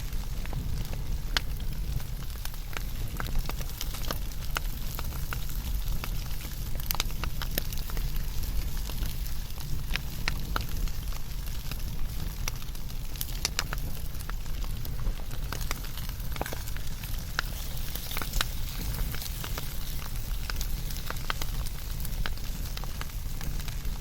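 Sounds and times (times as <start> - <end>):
fire crackling and popping: 0.0 - 24.0
low rumble and hiss of fire: 0.0 - 24.0.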